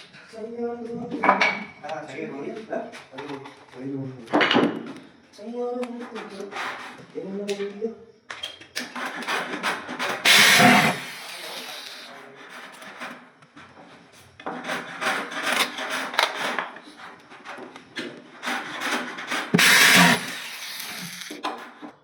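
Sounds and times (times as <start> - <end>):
hand tool scraping wood: 10.2 - 12.1, 18.5 - 21.4.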